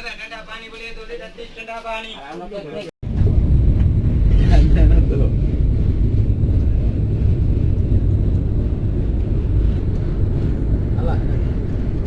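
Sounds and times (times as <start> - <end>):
train coach low rumble: 3.0 - 12.0.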